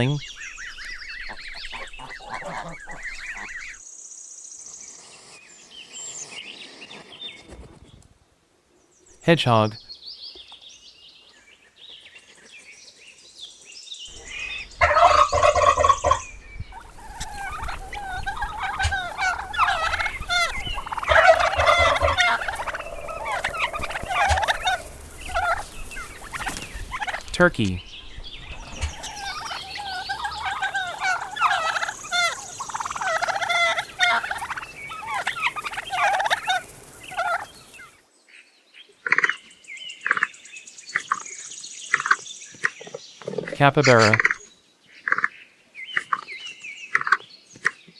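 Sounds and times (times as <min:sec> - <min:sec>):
turkeys gobbling: 0:00.0 - 0:03.8, 0:14.2 - 0:16.2, 0:16.8 - 0:27.8, 0:28.6 - 0:38.0.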